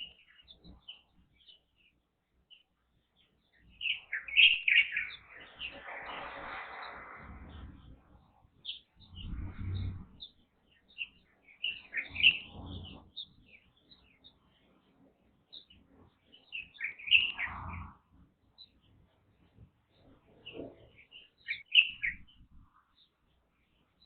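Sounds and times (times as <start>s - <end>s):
birds chirping: 0.0s - 24.0s
low rumble: 9.0s - 10.2s.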